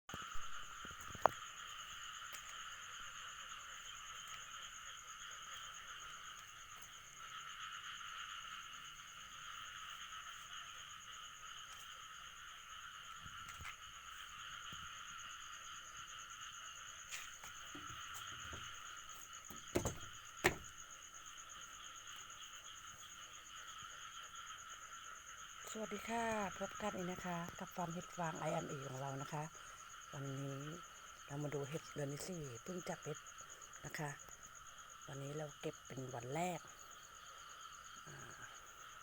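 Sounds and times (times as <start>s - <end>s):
frogs and insects calling: 0.1s - 39.0s
sharp knocks: 19.5s - 20.7s.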